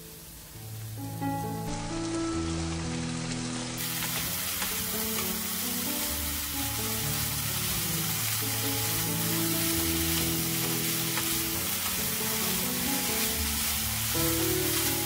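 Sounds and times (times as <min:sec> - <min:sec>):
vegetables sizzling in oil: 0:00.0 - 0:15.0
spatula stirring in pan: 0:03.8 - 0:15.0.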